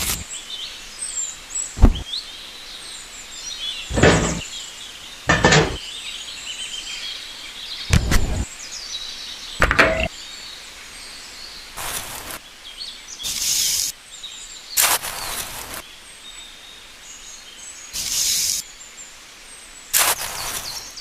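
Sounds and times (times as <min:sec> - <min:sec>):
birds chirping: 0:00.0 - 0:21.0
knocks and scraping from hand work: 0:03.9 - 0:04.4, 0:05.3 - 0:05.8, 0:09.6 - 0:10.1.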